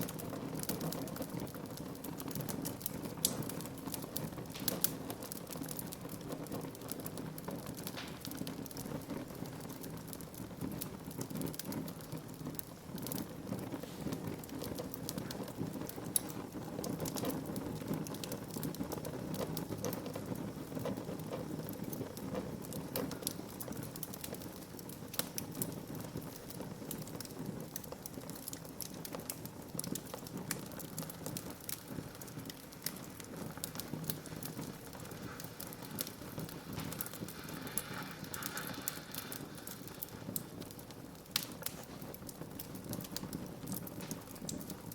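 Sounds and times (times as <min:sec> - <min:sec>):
flames rushing: 0:00.0 - 0:44.9
wood fire crackling: 0:00.0 - 0:44.9.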